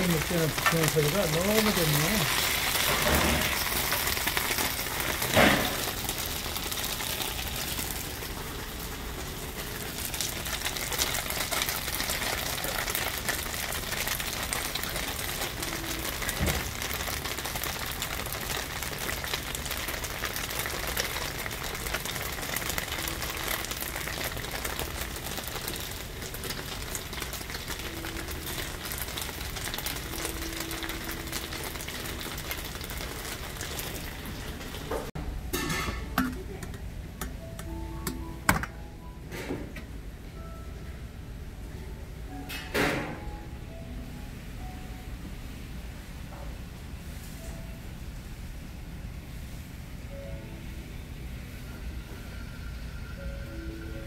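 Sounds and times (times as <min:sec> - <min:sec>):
food sizzling in oil: 0:00.0 - 0:36.1.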